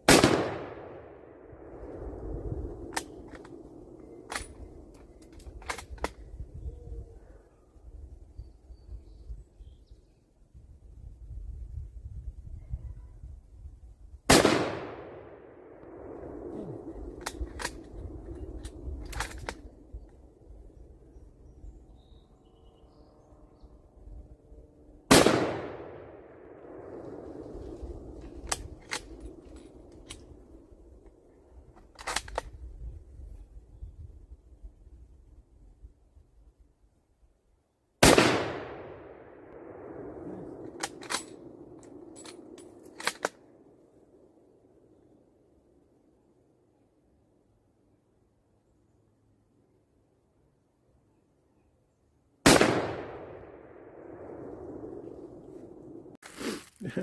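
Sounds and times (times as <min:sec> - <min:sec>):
rifle shot: 0:00.0 - 0:01.7, 0:14.3 - 0:18.0, 0:25.1 - 0:27.2, 0:38.0 - 0:43.4, 0:52.4 - 0:55.0
low wind rumble: 0:00.0 - 0:51.1, 0:52.4 - 0:56.2
rifle bolt metallic clicks: 0:04.2 - 0:06.2, 0:17.1 - 0:20.2, 0:28.4 - 0:30.3, 0:31.8 - 0:32.6, 0:40.6 - 0:43.4.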